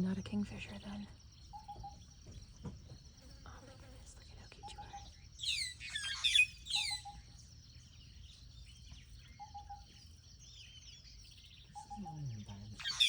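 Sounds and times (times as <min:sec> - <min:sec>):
birds chirping and whistling: 0:04.4 - 0:13.0.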